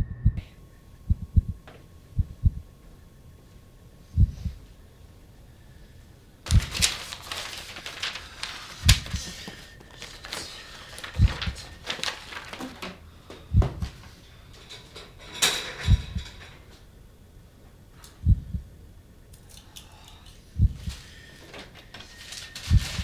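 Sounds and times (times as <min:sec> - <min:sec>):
rustling: 0:06.4 - 0:16.9, 0:20.7 - 0:23.0
deep regular thud: 0:13.5 - 0:14.0.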